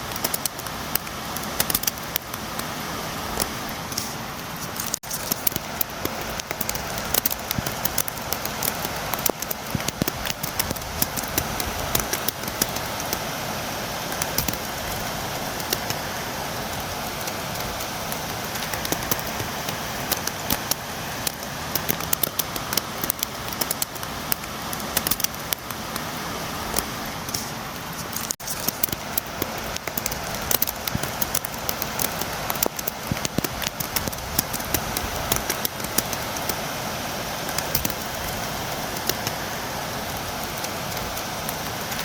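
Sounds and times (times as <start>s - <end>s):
rain: 0.0s - 42.0s
raindrops tapping on window: 4.7s - 13.3s, 14.1s - 26.1s, 28.2s - 36.6s.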